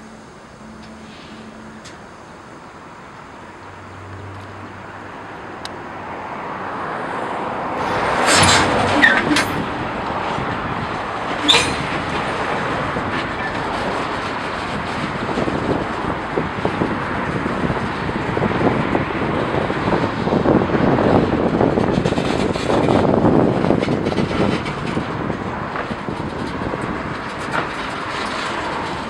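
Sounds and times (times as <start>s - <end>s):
freight train rolling: 0.0s - 29.0s
metallic clanks: 7.8s - 10.0s, 11.2s - 12.3s
high squeal: 7.8s - 10.2s, 11.3s - 12.3s.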